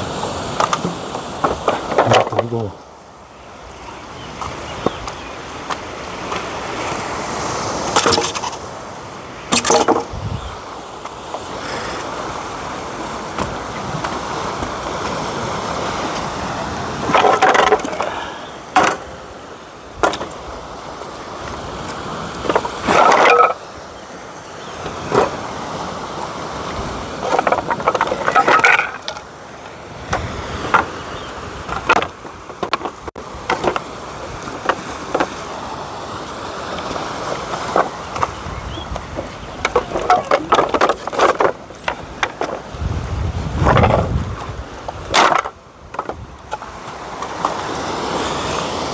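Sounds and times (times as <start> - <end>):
wind or surf: 0.0 - 48.9
wood clattering against stone: 0.6 - 2.7, 7.9 - 8.6, 9.5 - 10.1, 17.0 - 19.1, 20.0 - 20.4, 22.4 - 23.6, 27.2 - 29.3, 30.1 - 30.9, 31.6 - 33.9, 34.5 - 35.4, 37.6 - 42.7, 43.6 - 44.2, 44.9 - 47.6.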